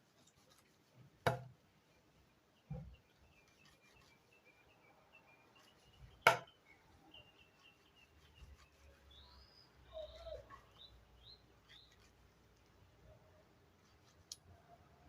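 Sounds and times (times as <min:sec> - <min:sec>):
birds chirping and whistling: 0:02.7 - 0:11.9
sharp knock: 0:06.2 - 0:06.5.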